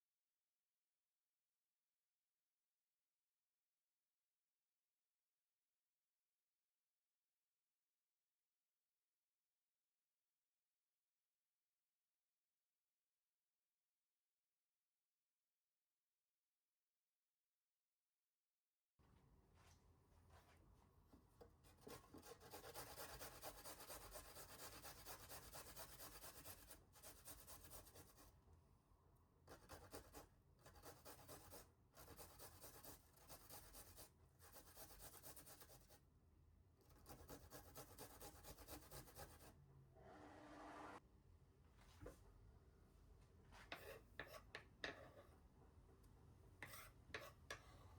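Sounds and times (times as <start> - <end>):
soft scraping and rubbing: 43.5 - 45.4, 46.6 - 47.9.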